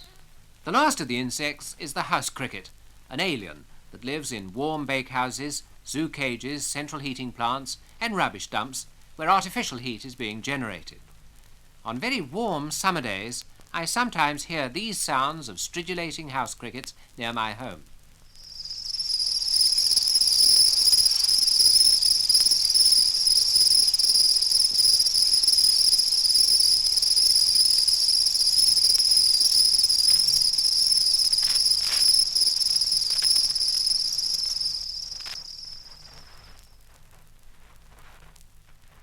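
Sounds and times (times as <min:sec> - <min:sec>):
crickets chirring: 0:18.3 - 0:37.0.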